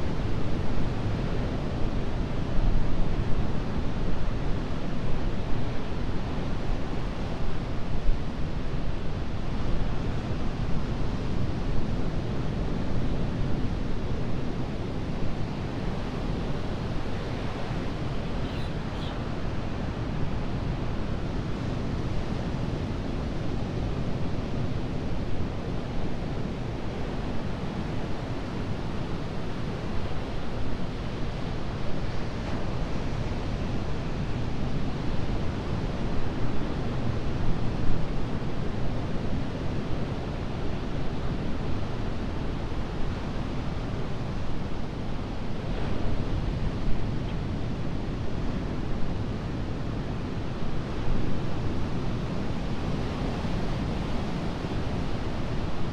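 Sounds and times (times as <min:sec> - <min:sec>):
wind rumble on microphone: 0:00.0 - 0:55.9
waves breaking on shore: 0:50.7 - 0:55.9.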